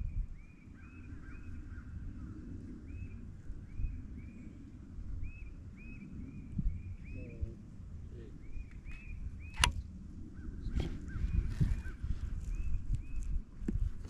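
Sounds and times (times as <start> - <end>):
bird chirping: 8.2 - 13.3
sharp click: 9.5 - 9.8.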